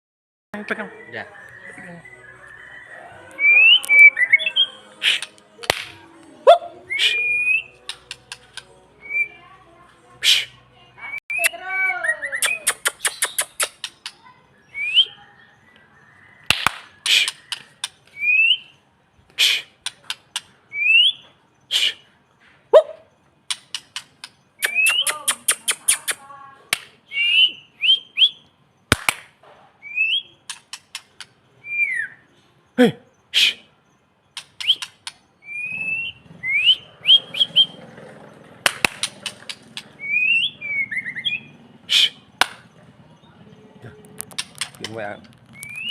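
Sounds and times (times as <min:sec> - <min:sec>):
bird singing whistled notes: 0:00.6 - 0:05.4, 0:06.7 - 0:09.4, 0:10.2 - 0:18.8, 0:20.3 - 0:22.0, 0:23.7 - 0:26.2, 0:27.0 - 0:28.5, 0:29.8 - 0:33.5, 0:34.4 - 0:37.9, 0:39.2 - 0:43.5, 0:44.6 - 0:45.9
harsh rasping bird notes: 0:01.6 - 0:15.1, 0:16.5 - 0:18.7, 0:19.3 - 0:22.2, 0:23.5 - 0:26.4, 0:33.2 - 0:33.8, 0:34.4 - 0:43.0
bird clicks: 0:07.8 - 0:08.7, 0:12.4 - 0:14.2, 0:16.5 - 0:18.1, 0:23.5 - 0:27.0, 0:30.5 - 0:31.4, 0:34.4 - 0:35.2, 0:38.6 - 0:39.9, 0:44.0 - 0:45.9.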